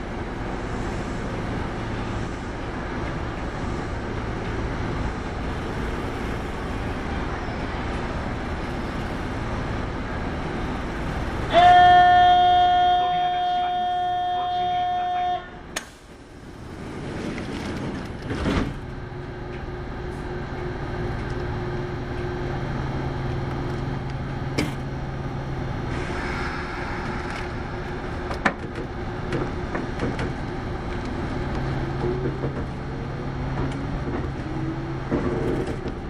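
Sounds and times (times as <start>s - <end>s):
electric train motor hum: 0.0s - 36.0s
wheels and car body knocking: 28.3s - 30.4s.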